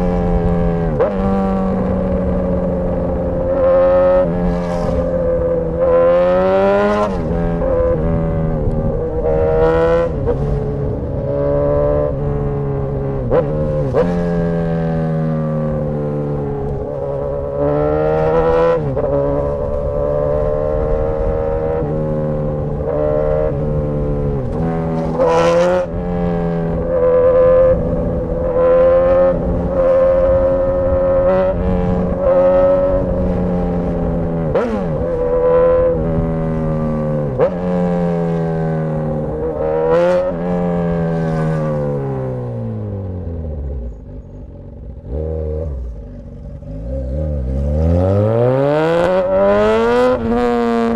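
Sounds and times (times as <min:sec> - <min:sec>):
loud motorcycle engine revving: 0:44.7 - 0:50.9.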